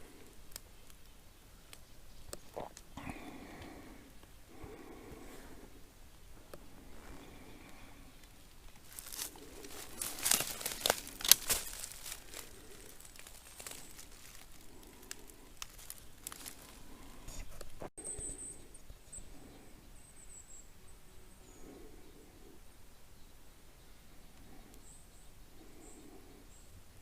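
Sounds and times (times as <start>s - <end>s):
twigs crackling underfoot: 0.0s - 17.9s
footsteps on forest trail: 8.6s - 17.9s.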